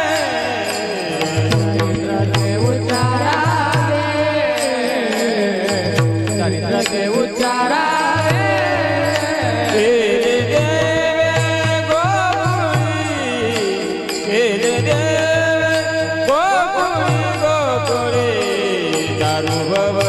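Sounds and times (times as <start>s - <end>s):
deep drum beats: 1.3s - 4.2s.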